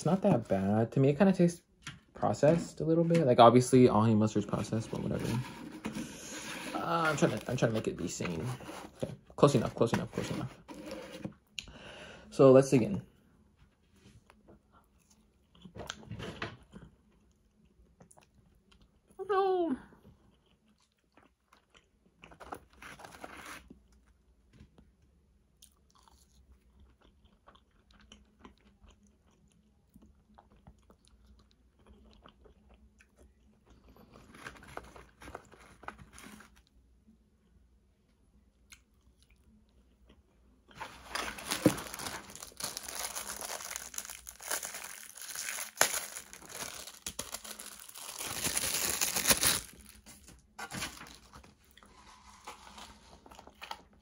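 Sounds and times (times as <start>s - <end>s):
chewing and crunching food: 14.1s - 19.2s, 19.9s - 50.6s, 51.3s - 54.0s.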